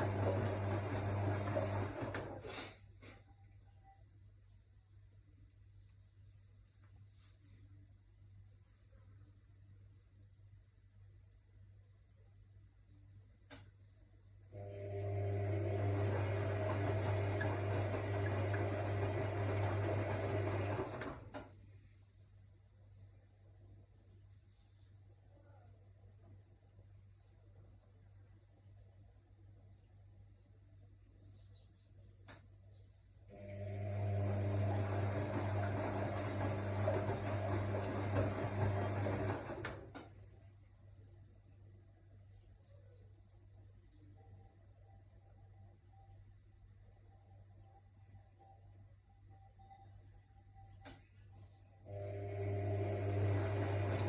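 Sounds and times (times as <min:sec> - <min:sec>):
washing machine hum: 0:00.0 - 0:02.6, 0:14.5 - 0:21.7, 0:33.3 - 0:40.6, 0:51.8 - 0:54.0.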